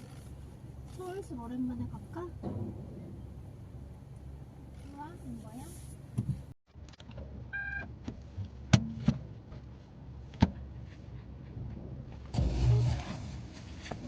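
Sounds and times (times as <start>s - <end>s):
short electronic beep: 7.5s - 7.9s.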